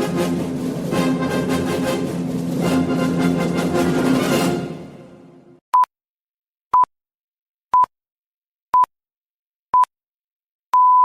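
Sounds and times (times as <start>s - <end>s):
orchestral theme music: 0.0s - 5.6s.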